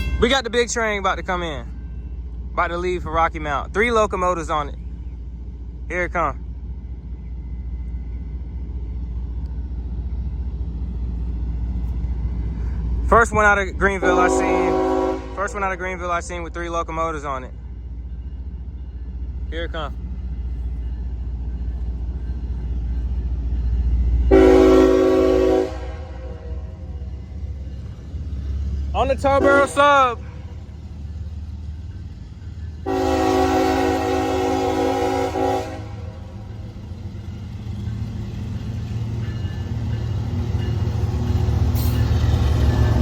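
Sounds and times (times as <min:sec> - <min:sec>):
diesel locomotives rumbling: 0:00.0 - 0:43.0
locomotive air horn blast: 0:14.0 - 0:15.6, 0:24.3 - 0:26.6, 0:29.4 - 0:30.4, 0:32.8 - 0:36.3.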